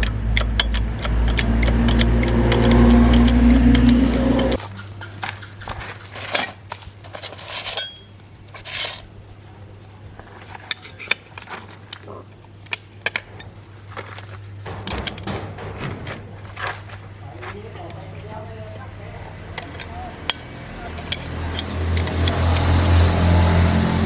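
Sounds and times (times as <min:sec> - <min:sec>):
low hum: 0:00.0 - 0:04.6, 0:09.0 - 0:17.4
engine running: 0:00.0 - 0:05.2, 0:10.4 - 0:24.0
metal tools clinking: 0:06.2 - 0:09.2, 0:09.8 - 0:15.6, 0:19.4 - 0:23.3.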